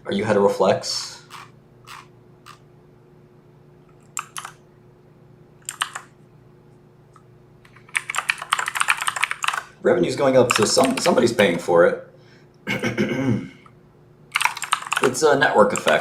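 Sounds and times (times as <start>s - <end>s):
keyboard typing: 1.3s - 2.6s, 4.0s - 4.6s, 5.6s - 6.1s, 7.7s - 9.7s, 10.4s - 11.4s, 14.3s - 16.0s.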